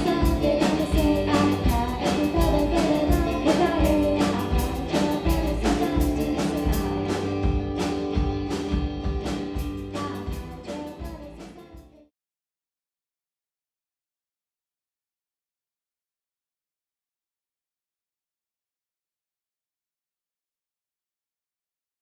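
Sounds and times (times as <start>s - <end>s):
rock music with singing: 0.0s - 12.0s.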